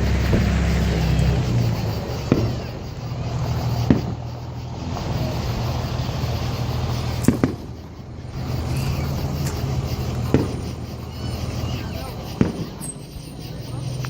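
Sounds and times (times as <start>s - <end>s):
firework explosions: 0.0s - 14.0s
vehicle engine humming: 0.0s - 14.0s.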